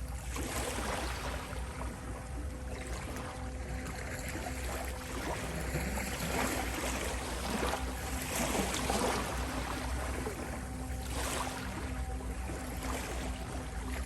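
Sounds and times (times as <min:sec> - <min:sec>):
steady sustained tone: 0:00.0 - 0:14.0
ocean waves washing on shore: 0:05.1 - 0:14.0.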